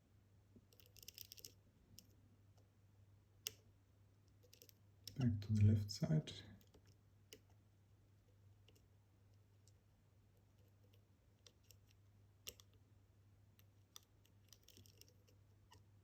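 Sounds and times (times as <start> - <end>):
low steady hum: 1.6 - 14.2.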